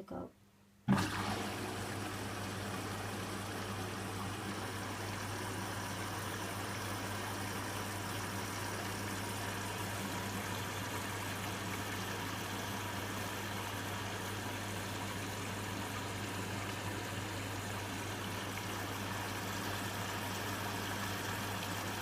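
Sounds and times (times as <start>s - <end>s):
washing machine humming: 0.8s - 22.0s
water noise: 0.9s - 22.0s.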